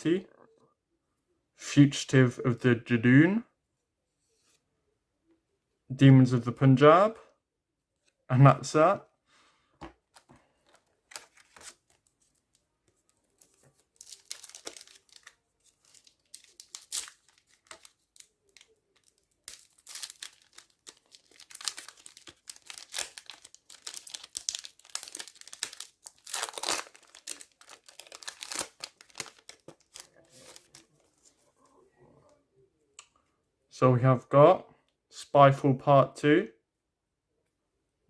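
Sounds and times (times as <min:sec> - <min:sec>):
cards rustling: 0:09.8 - 0:31.5
card pack wrapper tearing and crinkling: 0:10.2 - 0:12.5, 0:13.3 - 0:30.9.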